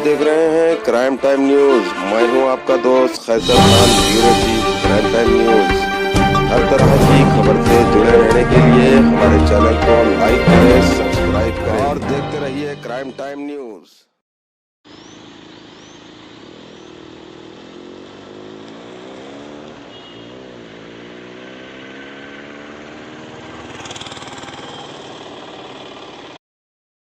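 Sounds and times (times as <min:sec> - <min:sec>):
vehicle engine running: 0:15.2 - 0:19.8.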